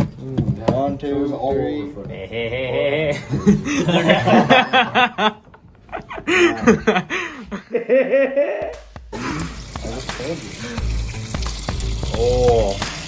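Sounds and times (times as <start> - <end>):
people laughing: 2.0 - 9.5.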